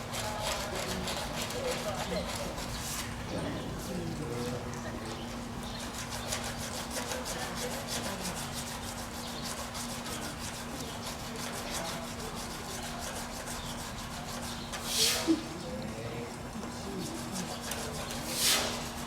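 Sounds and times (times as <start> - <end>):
rasp filing toenail: 0.1 - 2.8, 5.8 - 14.8.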